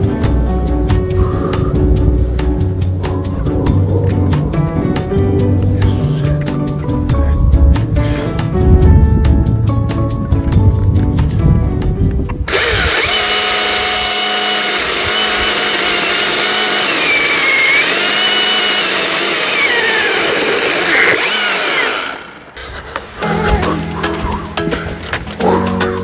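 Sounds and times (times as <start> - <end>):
electric chainsaw cutting wood: 12.5 - 22.6.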